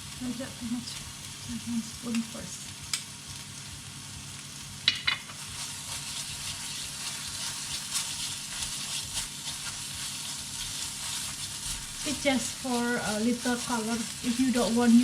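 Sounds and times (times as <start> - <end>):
spice paste sizzling in oil: 0.0 - 15.0.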